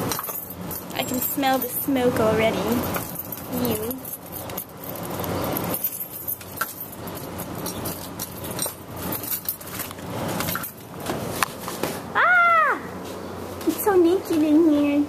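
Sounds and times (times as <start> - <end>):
keys jangling: 0.0 - 11.0.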